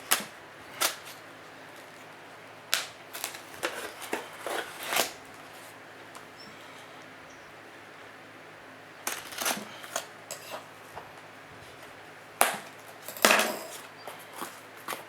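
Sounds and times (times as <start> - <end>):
package rustling and scraping: 3.1 - 5.8.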